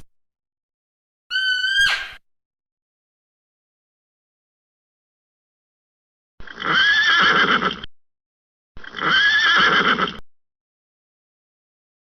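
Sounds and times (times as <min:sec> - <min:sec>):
horse whinnying: 0:06.4 - 0:07.9, 0:08.8 - 0:10.2.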